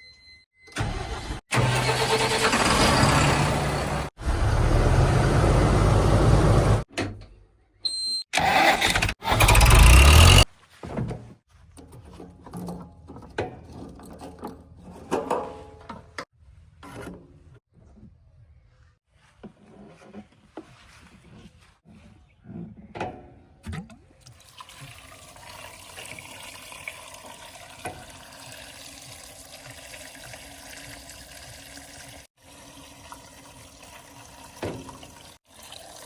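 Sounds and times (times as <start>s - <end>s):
heavy diesel machinery engines: 0.8s - 6.8s.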